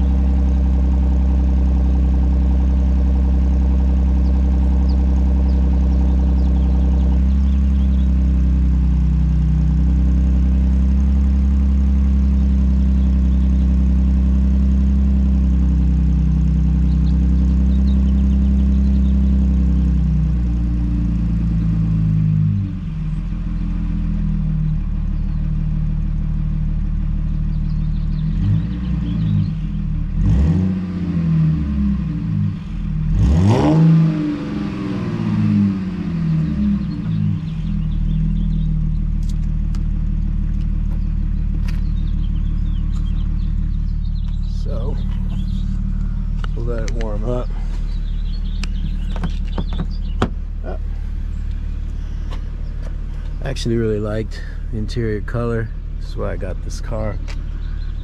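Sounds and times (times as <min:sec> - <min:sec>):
engine throttle revs: 0:27.0 - 0:58.0
car engine fast idle: 0:41.6 - 0:58.0.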